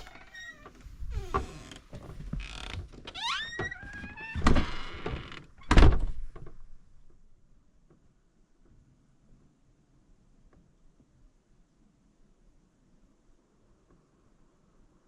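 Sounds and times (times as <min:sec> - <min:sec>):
door closing thunks: 0:00.0 - 0:06.6
door creaking on hinges: 0:00.0 - 0:06.6.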